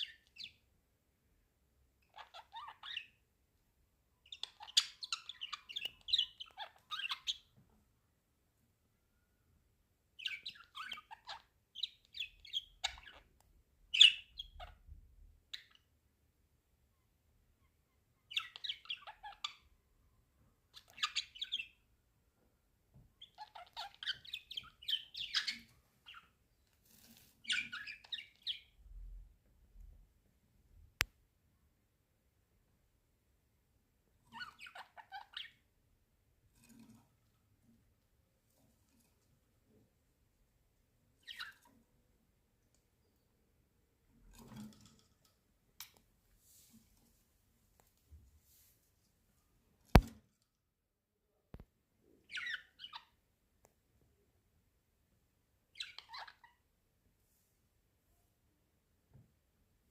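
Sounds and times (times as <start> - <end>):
budgerigars chattering and chirping: 52.3 - 53.1.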